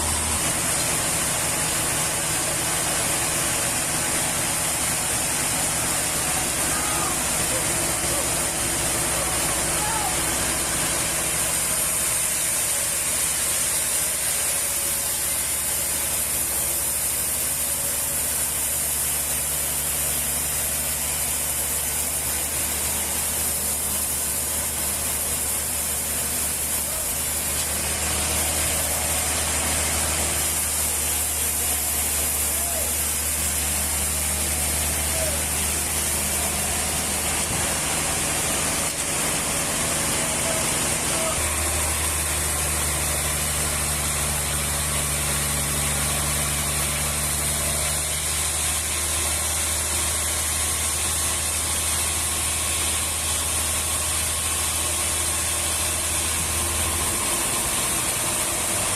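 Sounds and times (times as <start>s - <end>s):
low mechanical hum: 0.0s - 58.9s.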